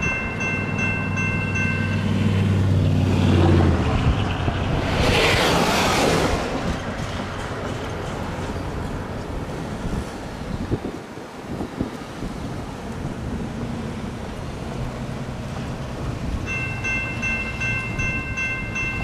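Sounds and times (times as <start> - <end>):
train engine rumble: 0.0 - 19.0
wind noise on microphone: 0.0 - 19.0
whoosh: 2.1 - 7.4.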